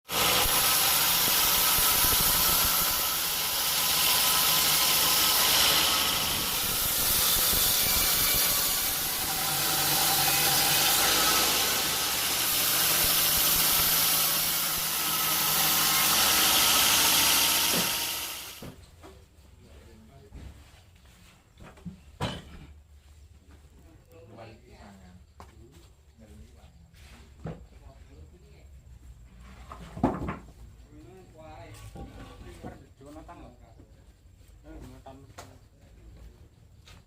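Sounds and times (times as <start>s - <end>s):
machinery hissing: 0.1s - 18.6s.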